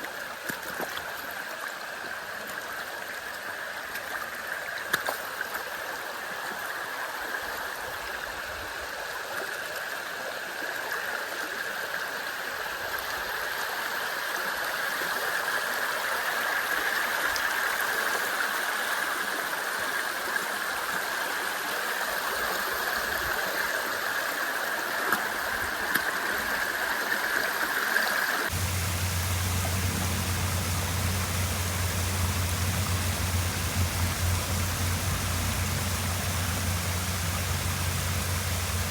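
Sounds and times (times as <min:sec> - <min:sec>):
deep water rush with low rumble: 0:28.5 - 0:38.9
waterfall rushing: 0:28.5 - 0:38.9.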